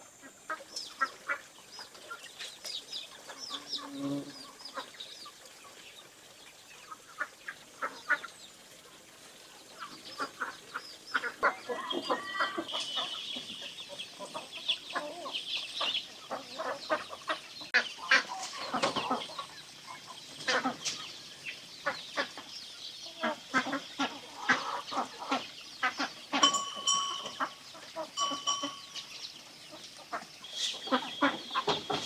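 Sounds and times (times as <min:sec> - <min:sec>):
chickens clucking: 0:09.6 - 0:32.0
chicken high held calls: 0:11.4 - 0:13.8.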